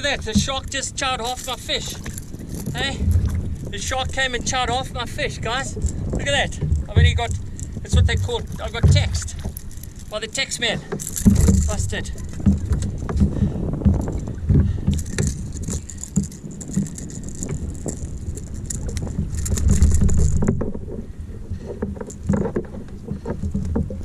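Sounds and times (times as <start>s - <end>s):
fishing gear rattling and knocking: 0.0s - 24.0s
low rumble: 2.1s - 4.6s.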